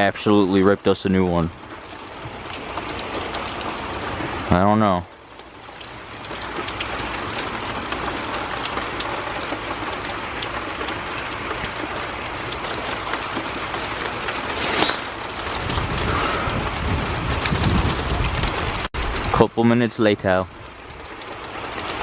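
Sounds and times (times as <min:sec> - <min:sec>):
raindrops ticking on surfaces: 0:00.0 - 0:22.0
steady rain falling: 0:00.0 - 0:22.0
low thunder rumble: 0:13.5 - 0:19.5
whoosh: 0:14.5 - 0:15.2.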